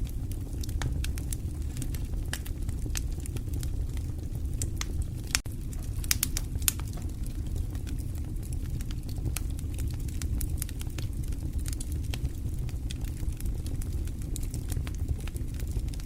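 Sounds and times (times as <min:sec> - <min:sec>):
burning logs popping and crackling: 0:00.0 - 0:16.0
fire rumbling: 0:00.0 - 0:16.0.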